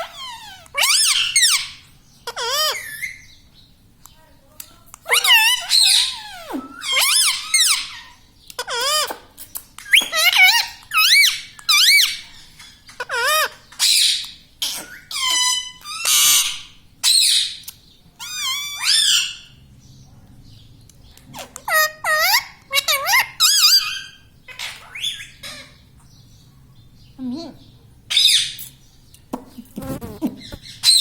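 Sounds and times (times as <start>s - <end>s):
parakeet squawking: 0.0s - 3.4s, 5.0s - 9.2s, 9.8s - 17.6s, 18.2s - 19.5s, 21.3s - 25.9s, 28.1s - 28.6s, 29.8s - 31.0s.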